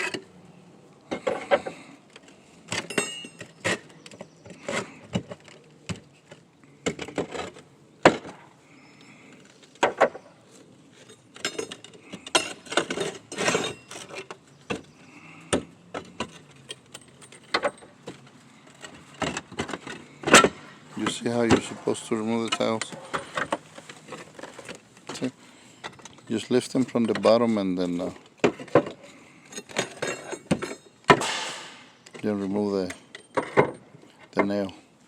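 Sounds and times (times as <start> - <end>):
roof tiles clinking and knocking: 1.1 - 8.4, 10.9 - 31.4.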